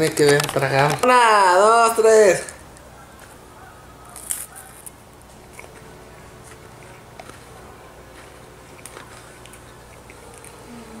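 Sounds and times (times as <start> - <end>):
crunchy bite: 4.0 - 5.0
chewing: 8.7 - 11.0.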